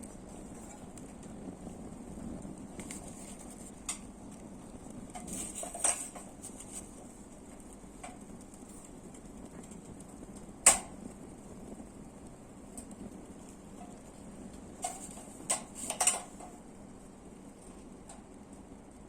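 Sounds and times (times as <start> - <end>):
low steady background noise: 0.0 - 19.0
metallic clicks of frying pan: 10.6 - 11.0, 14.8 - 16.6.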